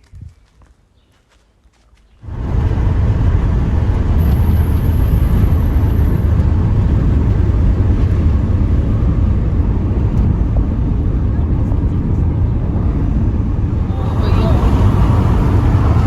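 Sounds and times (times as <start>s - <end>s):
moving car rumble: 2.2s - 16.0s.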